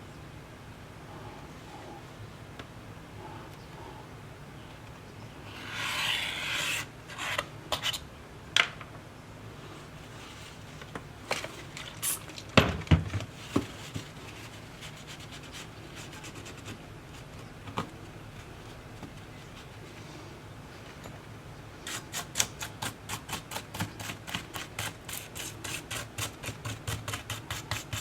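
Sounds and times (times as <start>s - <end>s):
tool scraping rub: 5.5s - 8.0s, 21.8s - 28.0s.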